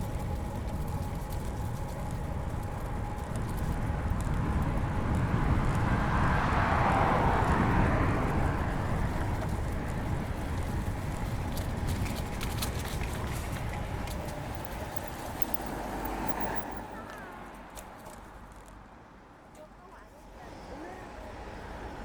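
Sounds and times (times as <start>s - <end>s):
bike tyre rumble on pavement: 0.0s - 16.7s.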